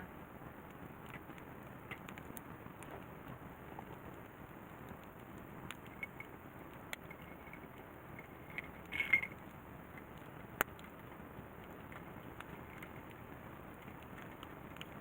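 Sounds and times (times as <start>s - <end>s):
campfire crackling: 0.0s - 15.0s
short ringing clink: 8.9s - 9.4s.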